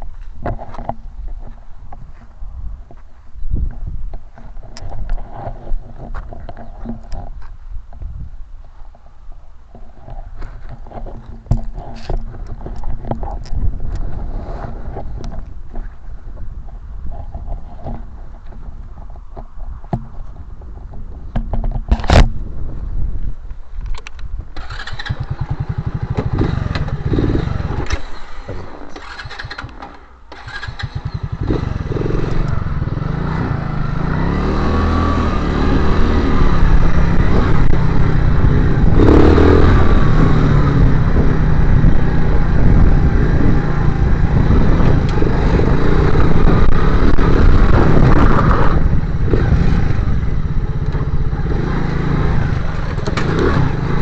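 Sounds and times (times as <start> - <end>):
motorcycle engine running: 24.3 - 54.0.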